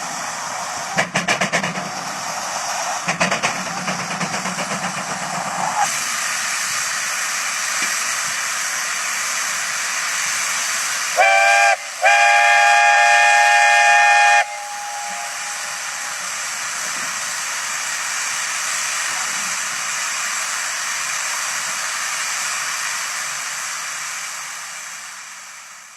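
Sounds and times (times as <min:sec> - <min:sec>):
steady steam hiss: 0:00.0 - 0:25.9
steam whistle blowing: 0:11.1 - 0:16.8.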